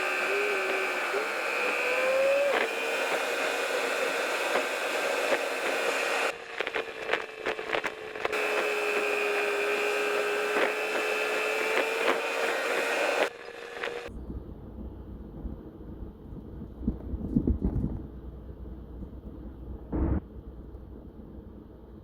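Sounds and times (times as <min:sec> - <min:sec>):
whining tone: 0:00.0 - 0:14.2
car cabin drone: 0:00.0 - 0:22.0.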